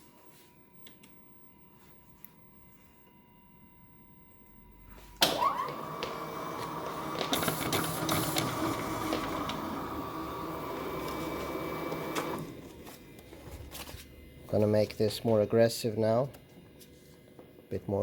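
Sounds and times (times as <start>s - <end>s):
document scanner rollers running: 5.2s - 18.0s.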